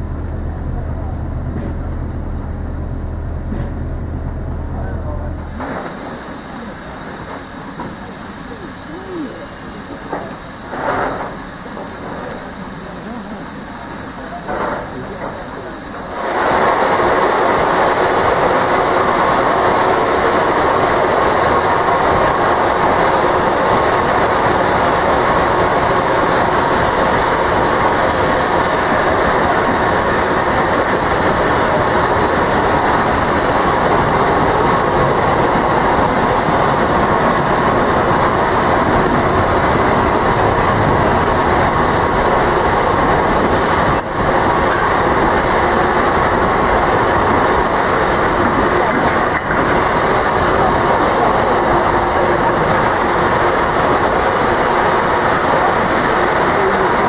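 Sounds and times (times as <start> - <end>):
freight wagons clattering on rails: 10.0 - 13.2, 14.2 - 32.8, 33.4 - 57.0.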